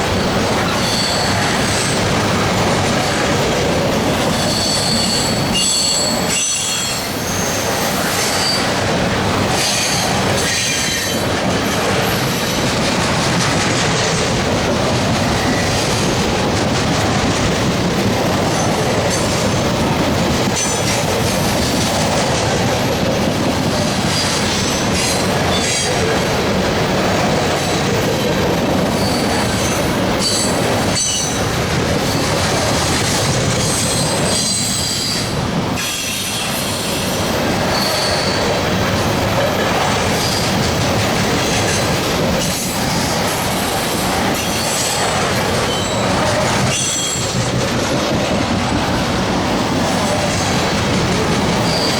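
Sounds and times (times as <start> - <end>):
freight train wheels rumbling on rail: 0.0 - 51.9
high-pitched wheel squeal: 0.8 - 1.5, 4.4 - 8.7.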